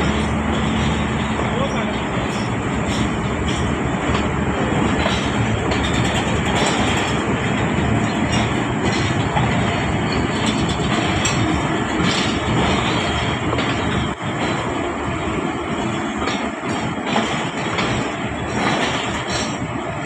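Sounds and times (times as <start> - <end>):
train wheels rumbling on rails: 0.0 - 20.0
wheels clacking over rail joints: 0.0 - 20.0.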